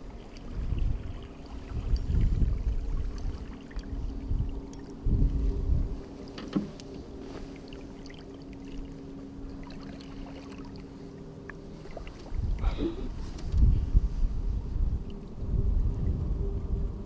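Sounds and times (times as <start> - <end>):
wind buffeting microphone: 0.0 - 7.9, 11.7 - 17.0
boat motor humming: 0.0 - 13.7.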